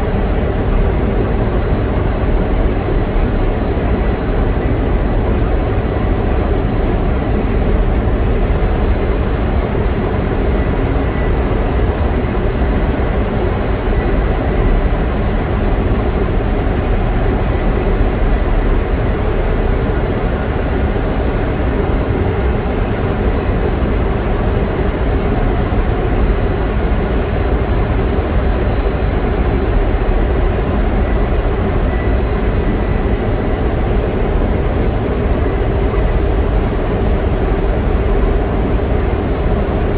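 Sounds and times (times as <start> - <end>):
faint steady whines: 0.0 - 39.9.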